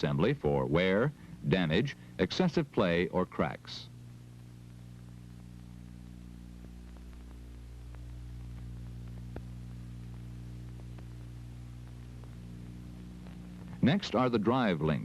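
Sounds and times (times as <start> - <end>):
low electrical hum: 0.0 - 15.0
faint clicks: 6.0 - 13.8.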